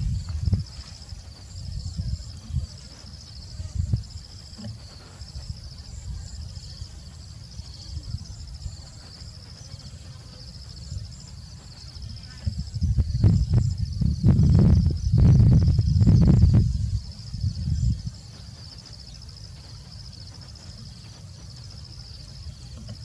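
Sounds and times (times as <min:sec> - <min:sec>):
low rumble: 0:00.0 - 0:02.7, 0:12.4 - 0:18.2
insects chirping: 0:00.0 - 0:23.0.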